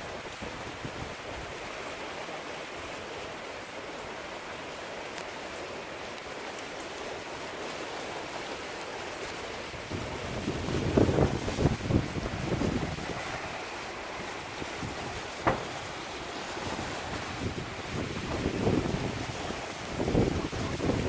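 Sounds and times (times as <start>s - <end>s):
steady rain falling: 0.0s - 21.0s
wind buffeting microphone: 9.8s - 21.0s.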